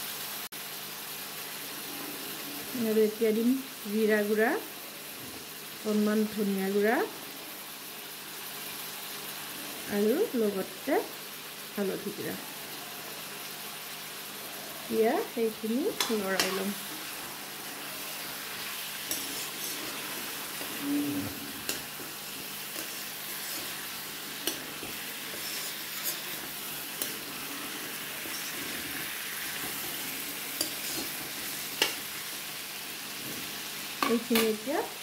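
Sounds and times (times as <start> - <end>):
food frying in oil: 0.0 - 35.0
metal spatula scraping and tapping pan: 15.9 - 17.0, 18.9 - 32.1.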